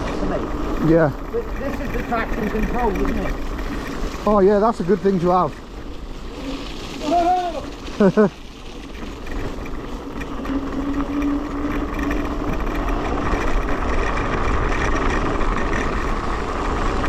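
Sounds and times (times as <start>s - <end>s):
tyres rumbling on rough track: 0.0s - 17.0s
electric motor whine: 8.8s - 17.0s.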